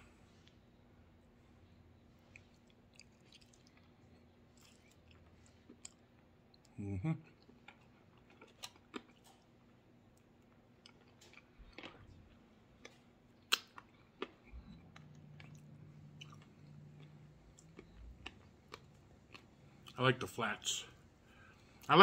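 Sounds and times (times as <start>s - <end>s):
chewing and biting: 2.2s - 6.7s, 7.4s - 20.0s
wet mouth clicks and smacks: 13.4s - 19.5s.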